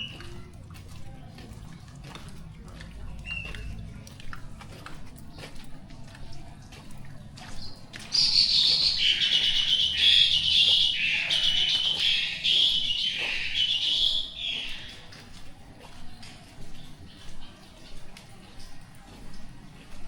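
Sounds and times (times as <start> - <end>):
faint dripping rain: 0.0 - 20.0
bird singing: 7.6 - 15.2.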